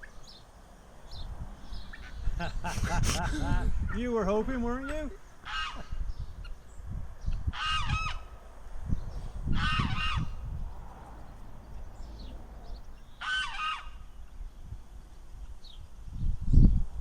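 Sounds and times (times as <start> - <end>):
gulls calling: 1.6 - 6.7, 7.3 - 8.5, 9.2 - 14.3.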